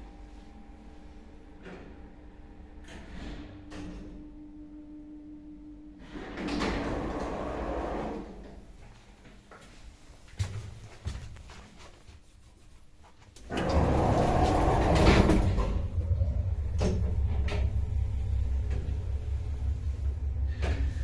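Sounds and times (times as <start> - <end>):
lift running hum: 0.0 - 8.9, 13.4 - 21.0
lift clattering start: 13.5 - 21.0.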